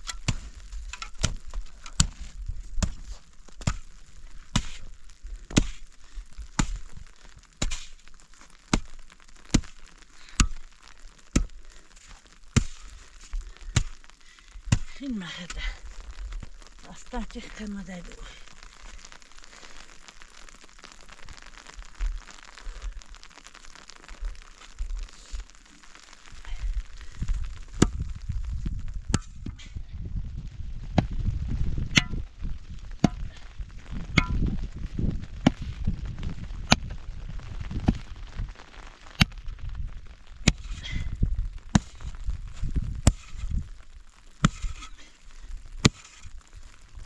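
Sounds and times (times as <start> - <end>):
low rumble: 26.5 - 38.6.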